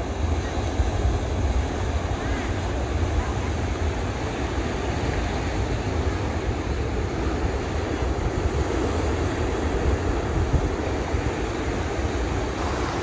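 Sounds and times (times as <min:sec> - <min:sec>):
surf washing: 0:00.0 - 0:13.0
wind buffeting microphone: 0:12.4 - 0:13.0.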